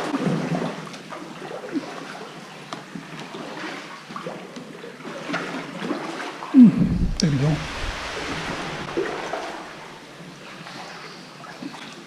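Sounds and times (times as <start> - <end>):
small splashes and drips: 0.0 - 6.5
water lapping and gurgling: 0.0 - 12.0.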